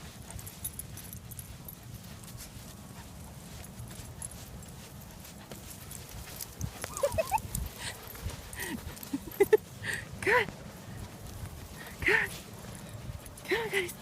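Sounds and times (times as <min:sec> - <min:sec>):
steady low rumble: 0:00.0 - 0:14.0
puppy whining: 0:06.6 - 0:09.6.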